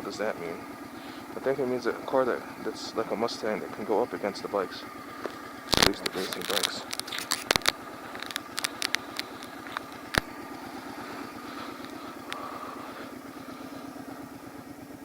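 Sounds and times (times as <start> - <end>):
motorcycle engine running: 0.0 - 15.0
sharp clicks and taps: 5.2 - 10.3.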